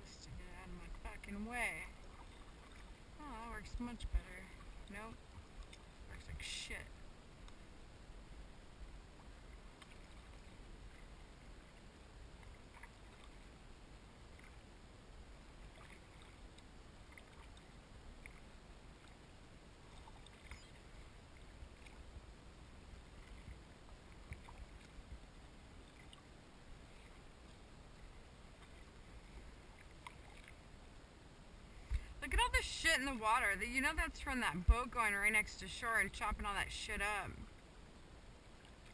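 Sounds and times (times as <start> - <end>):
kayak paddling on water: 0.0 - 38.9
paddle drips and splashes: 1.2 - 3.2, 4.4 - 6.2, 9.0 - 14.7, 15.3 - 31.0, 38.3 - 38.9.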